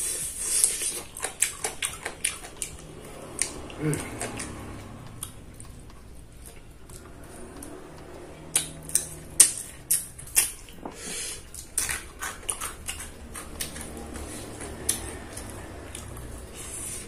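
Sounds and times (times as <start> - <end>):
chewing clicks and smacks: 0.6 - 16.7.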